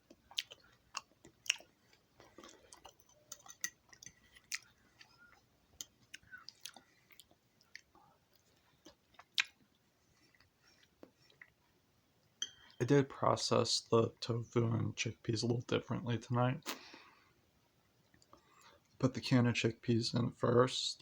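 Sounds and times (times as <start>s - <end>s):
person chewing food: 0.0s - 12.8s
mouth clicks and smacks: 8.8s - 9.6s.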